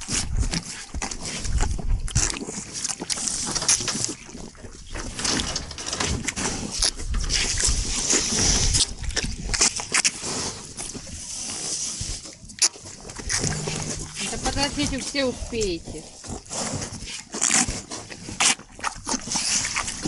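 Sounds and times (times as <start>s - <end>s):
knocks and rustles: 5.0s - 7.4s, 13.2s - 15.3s
cattle noises: 13.2s - 16.8s.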